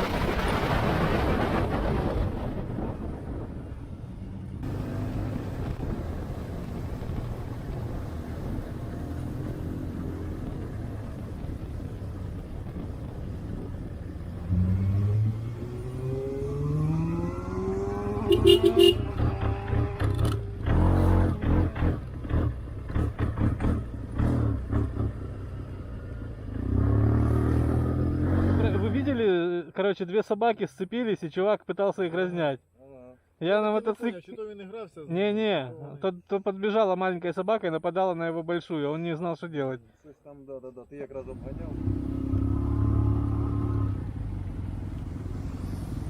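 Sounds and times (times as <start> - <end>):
wind rush: 0.0 - 15.8
motorcycle engine rumbling: 1.2 - 29.2.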